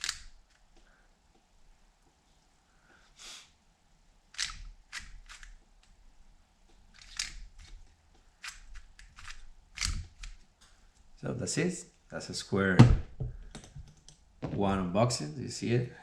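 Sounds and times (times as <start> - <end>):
plastic puzzle pieces clicking: 0.0 - 0.6, 4.4 - 5.6, 7.0 - 7.8, 8.4 - 10.4.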